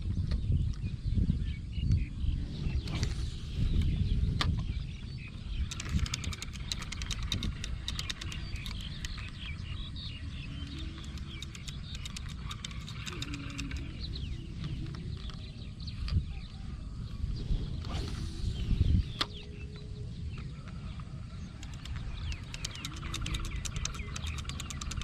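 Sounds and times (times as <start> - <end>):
small chirps: 5.3 - 16.2, 21.5 - 25.0
rapid clicking: 5.6 - 9.6, 10.5 - 14.1, 21.6 - 25.0.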